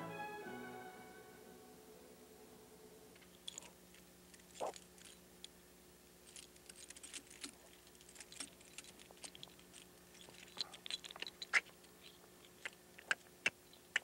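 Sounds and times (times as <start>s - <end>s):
faint steady hum: 0.0s - 14.0s
soft ticks and crackles: 6.2s - 14.0s.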